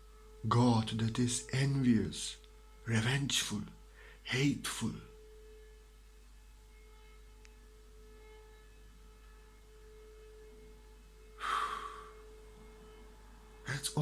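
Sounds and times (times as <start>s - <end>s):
faint electrical tone: 0.0s - 14.0s
low hum: 0.0s - 14.0s
breath drawn in: 11.4s - 12.2s.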